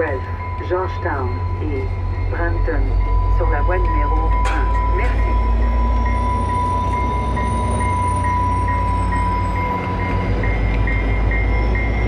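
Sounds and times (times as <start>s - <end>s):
diesel locomotive rumbling past: 0.0s - 12.0s
level-crossing bell ringing: 0.0s - 12.0s.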